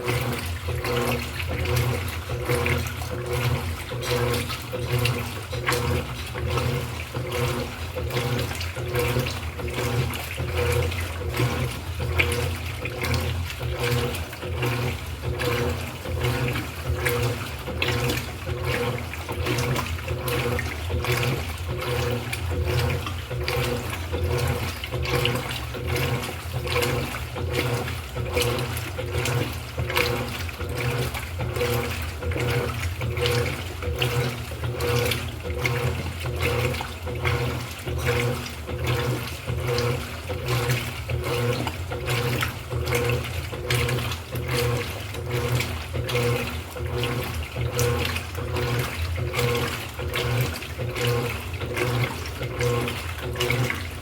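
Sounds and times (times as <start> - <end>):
washing machine motor hum: 0.0 - 54.0
water sloshing in tub: 0.0 - 54.0.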